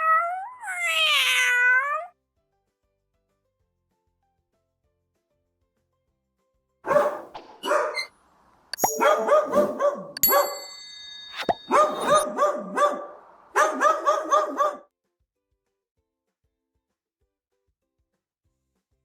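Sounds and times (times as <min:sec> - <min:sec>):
dog yapping: 0:06.9 - 0:08.1, 0:08.8 - 0:10.5, 0:11.5 - 0:14.8
thin ringing tone: 0:08.8 - 0:09.6, 0:10.2 - 0:12.3.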